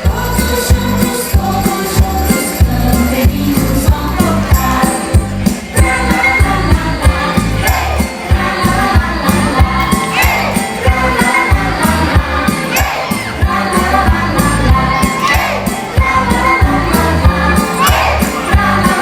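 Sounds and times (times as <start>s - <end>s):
shaken percussion: 0.0s - 19.0s.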